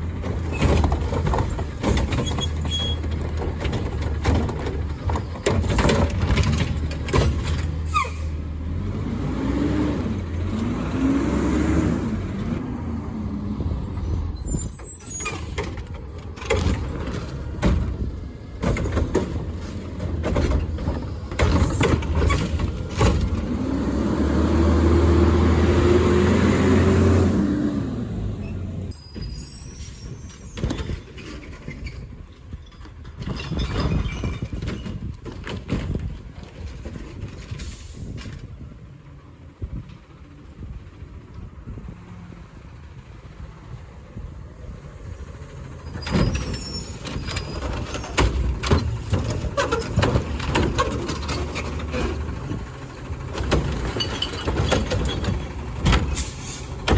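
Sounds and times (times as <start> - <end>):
diesel engine revving: 6.2 - 29.0, 44.7 - 56.9
hydraulics running: 13.6 - 38.1, 45.3 - 56.9
air brake hiss: 56.2 - 56.8.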